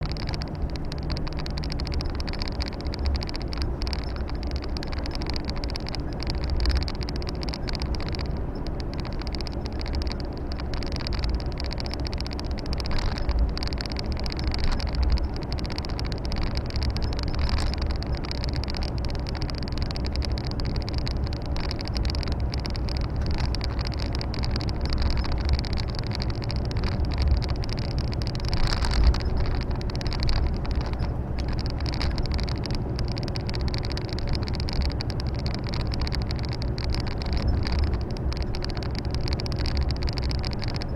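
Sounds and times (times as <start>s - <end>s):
road and wind noise: 0.0s - 40.9s
truck diesel engine drone: 0.0s - 40.9s.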